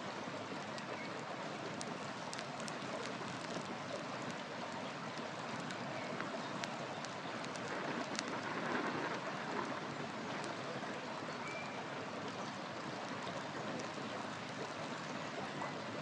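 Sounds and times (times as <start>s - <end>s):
river water rushing: 0.0s - 16.0s
wood fire crackling: 0.5s - 10.7s.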